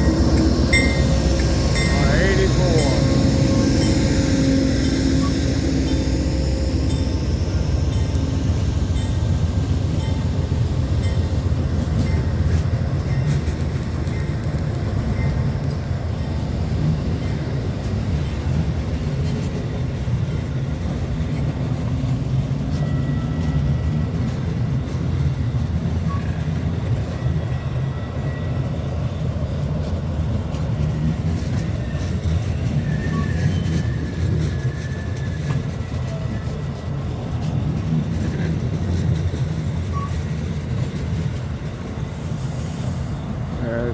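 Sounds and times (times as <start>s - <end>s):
train rumbling past: 0.0s - 43.9s
faint high squeals: 32.0s - 36.8s.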